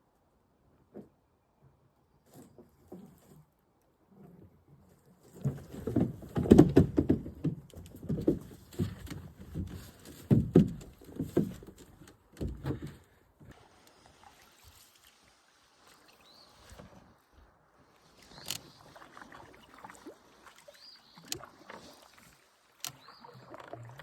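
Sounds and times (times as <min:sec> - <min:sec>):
paddle knocking against canoe: 0:05.4 - 0:13.6.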